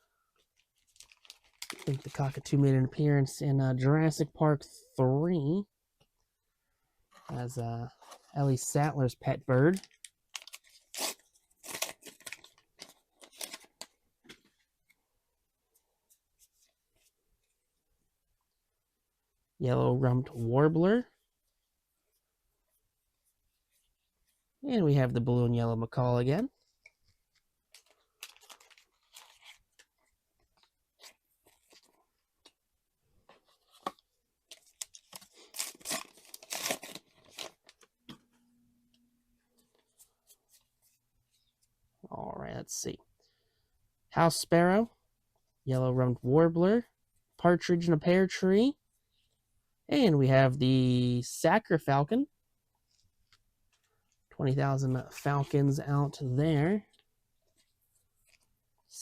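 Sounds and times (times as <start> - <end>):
foil wrapper tearing and crinkling: 0.8 - 2.1, 9.8 - 13.9, 27.8 - 29.9, 34.5 - 37.8
cards rustling and scraping: 9.7 - 14.7, 26.7 - 32.6, 33.2 - 38.2.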